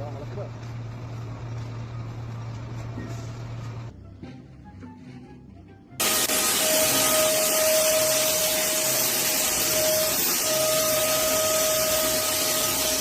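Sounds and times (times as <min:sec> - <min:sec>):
machine hissing and whining: 0:06.0 - 0:13.0.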